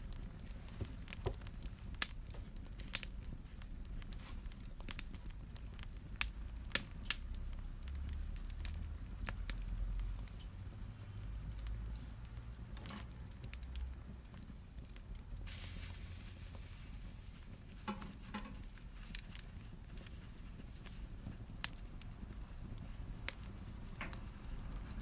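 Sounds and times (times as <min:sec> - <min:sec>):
fire crackling and popping: 0:00.0 - 0:25.0
low rumble of flames: 0:00.0 - 0:25.0
brief hiss: 0:15.5 - 0:17.1.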